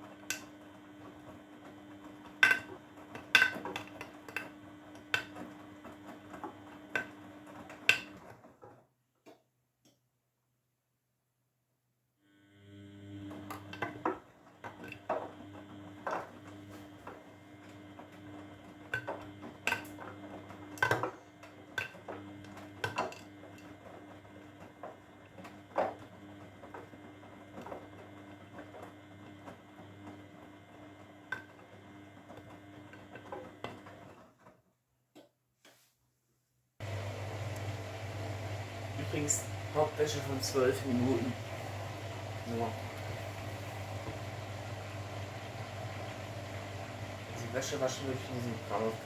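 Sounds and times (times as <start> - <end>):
washing machine motor hum: 0.0 - 8.4, 12.3 - 34.1, 36.8 - 49.0
faint clicks: 36.8 - 38.9.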